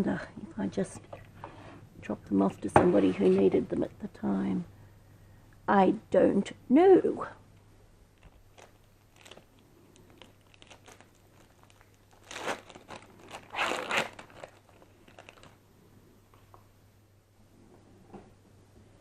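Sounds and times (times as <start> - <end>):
crinkling rustle: 8.2 - 15.6.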